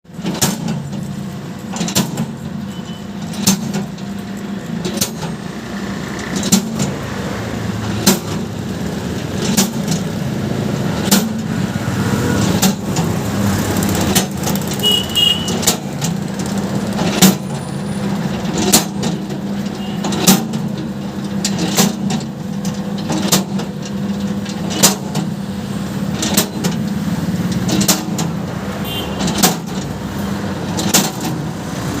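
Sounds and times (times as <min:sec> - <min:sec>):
construction machine humming: 0:00.1 - 0:21.8.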